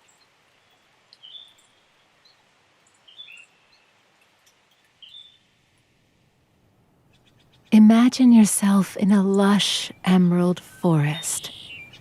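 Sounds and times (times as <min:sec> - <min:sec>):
faint forest ambience hiss: 0:00.0 - 0:12.0
small bird chirping: 0:04.7 - 0:05.4, 0:11.4 - 0:12.0.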